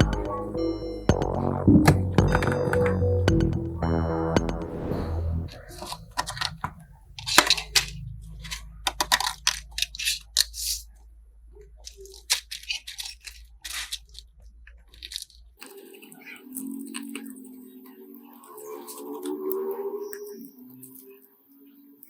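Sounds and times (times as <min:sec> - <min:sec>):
low hum: 0:00.6 - 0:05.7.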